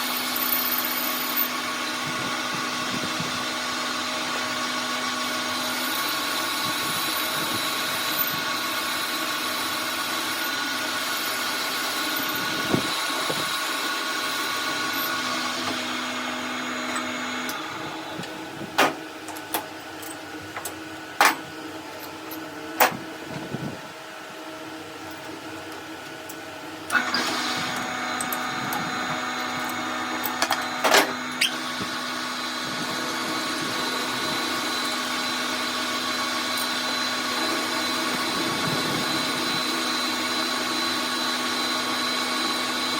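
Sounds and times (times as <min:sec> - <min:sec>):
electric workshop machine humming: 0:00.0 - 0:42.9.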